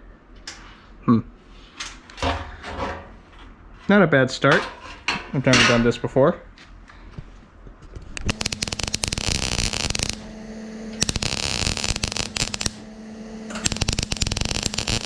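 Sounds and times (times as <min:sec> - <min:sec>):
steady low hum: 0:00.0 - 0:15.0
welding arc crackling: 0:08.0 - 0:15.0.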